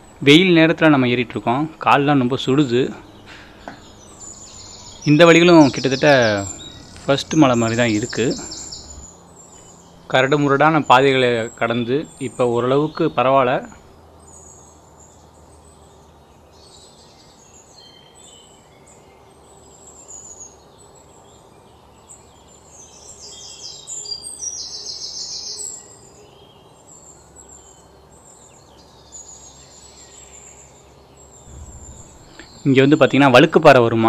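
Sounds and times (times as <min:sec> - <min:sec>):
forest birds chirping: 0:00.0 - 0:34.0
bird rapid trill: 0:02.5 - 0:16.0, 0:29.2 - 0:33.6.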